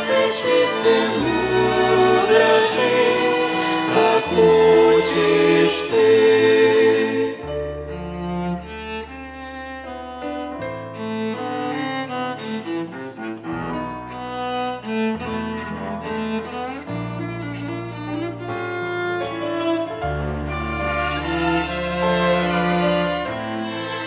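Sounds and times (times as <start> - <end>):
string orchestra playing: 0.0 - 24.0.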